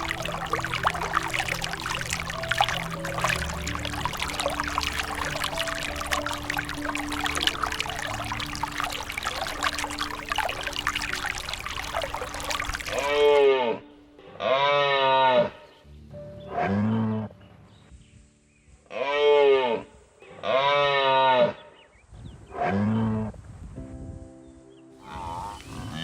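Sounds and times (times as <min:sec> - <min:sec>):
water rushing and splashing: 0:00.0 - 0:13.7.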